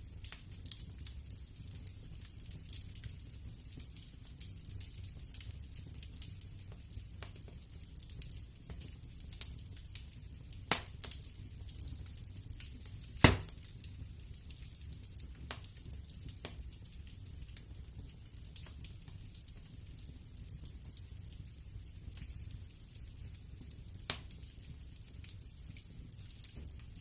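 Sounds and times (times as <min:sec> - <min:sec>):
fire crackling: 0:00.0 - 0:27.0
low rumble of flames: 0:00.0 - 0:27.0
loud fire pops: 0:10.6 - 0:16.9.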